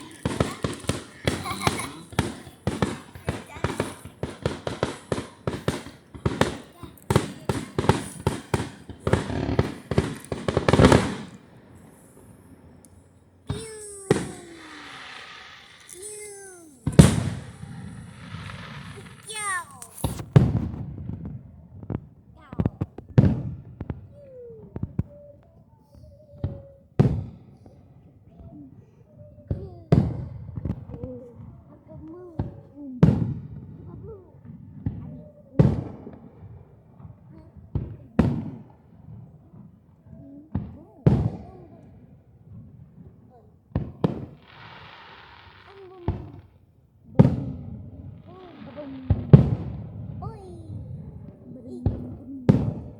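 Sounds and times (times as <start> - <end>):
fireworks bangs: 0.0 - 25.3, 29.5 - 31.5, 32.4 - 39.7, 40.5 - 52.9.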